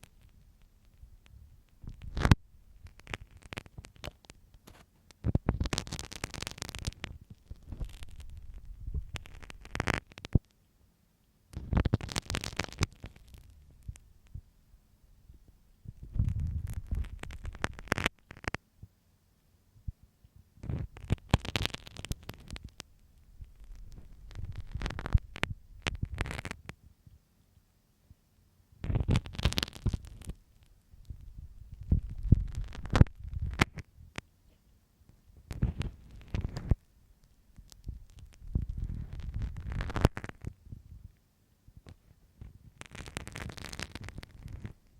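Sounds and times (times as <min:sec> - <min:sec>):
pin scratching in ear: 0:01.9 - 0:10.4, 0:23.5 - 0:26.6
muffled low rumble: 0:07.4 - 0:09.6, 0:13.5 - 0:18.0, 0:22.5 - 0:26.3, 0:30.1 - 0:34.2, 0:37.7 - 0:41.2.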